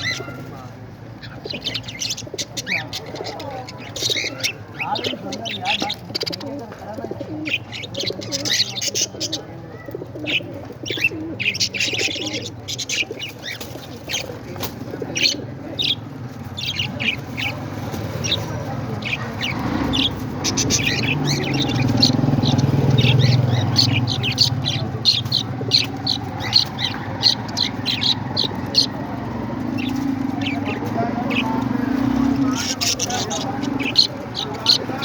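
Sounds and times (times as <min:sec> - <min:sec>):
parrots chirping and squawking: 0:00.0 - 0:35.0.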